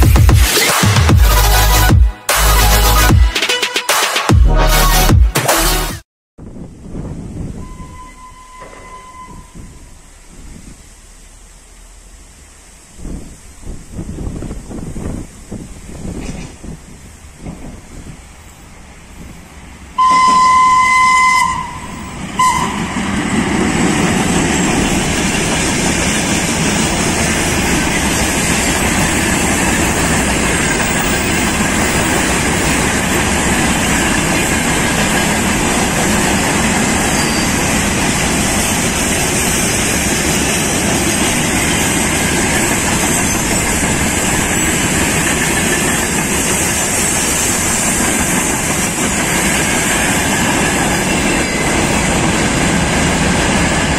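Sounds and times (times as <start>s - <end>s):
freight train rumbling past: 6.4s - 53.9s
locomotive horn blast: 7.6s - 10.0s, 20.0s - 23.0s
short horn toot: 7.6s - 10.0s, 20.0s - 22.8s
train wheel clatter: 7.8s - 11.6s, 13.0s - 18.2s, 21.9s - 53.9s.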